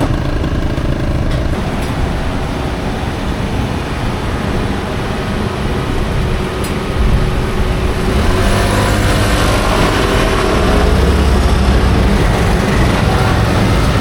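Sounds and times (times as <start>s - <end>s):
traffic din: 0.0s - 14.0s
vehicle engine rumbling: 0.0s - 14.0s.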